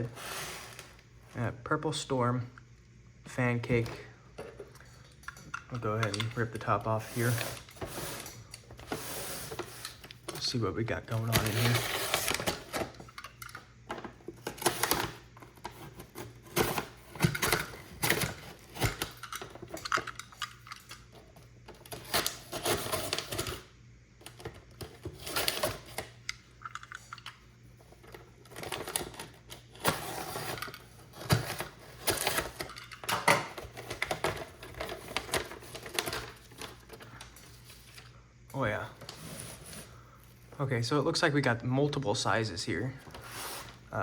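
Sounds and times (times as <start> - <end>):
paper tearing and crinkling: 6.9 - 10.0, 11.1 - 13.0, 14.4 - 19.1, 33.7 - 36.8.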